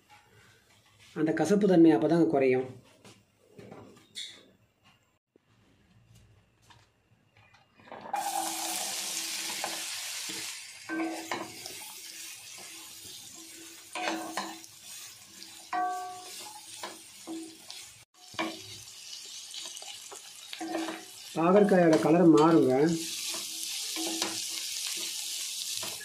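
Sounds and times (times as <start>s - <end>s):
vegetables sizzling in oil: 8.0s - 26.0s
spatula scraping a pan: 8.1s - 21.8s, 22.4s - 26.0s.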